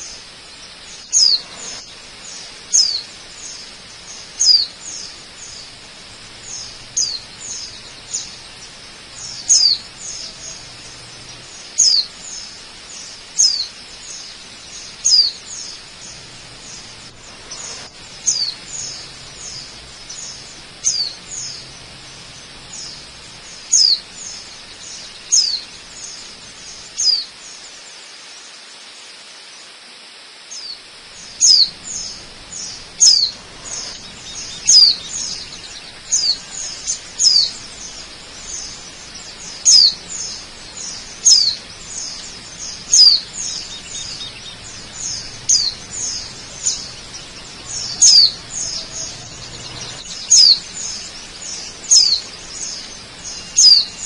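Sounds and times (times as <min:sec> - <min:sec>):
waterfall rushing: 0:00.0 - 0:54.0
bird call notes: 0:30.5 - 0:54.0.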